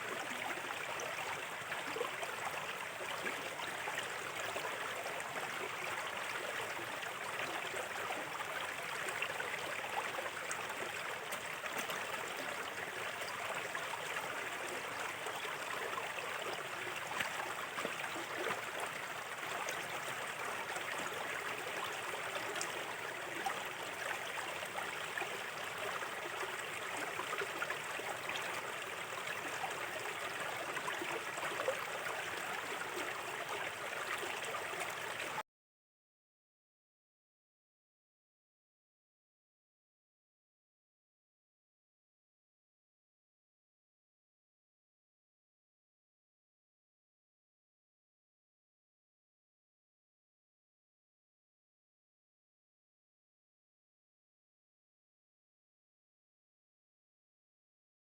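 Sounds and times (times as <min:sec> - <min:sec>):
stream babbling over stones: 0:00.0 - 0:35.4.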